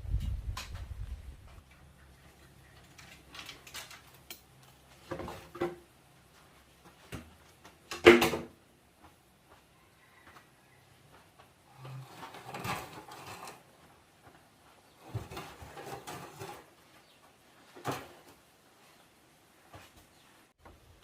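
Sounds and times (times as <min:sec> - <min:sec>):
objects knocking and clattering: 0:02.7 - 0:05.9, 0:07.1 - 0:08.6, 0:11.7 - 0:13.7, 0:15.0 - 0:16.7, 0:17.7 - 0:18.4.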